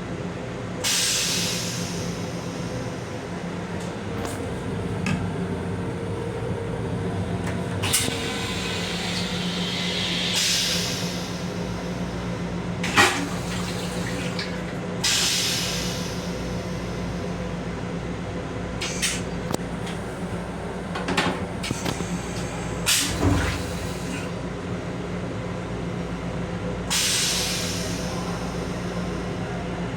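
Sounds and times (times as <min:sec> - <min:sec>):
electric railcar humming: 0:01.3 - 0:18.8.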